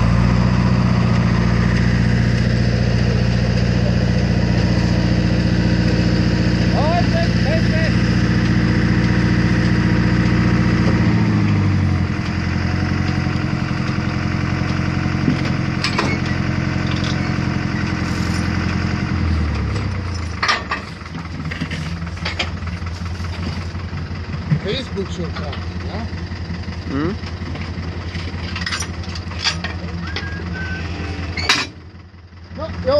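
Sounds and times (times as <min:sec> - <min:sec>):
engine running: 0:00.0 - 0:32.9
sharp clanks: 0:19.7 - 0:22.7, 0:27.6 - 0:30.4, 0:31.3 - 0:31.9.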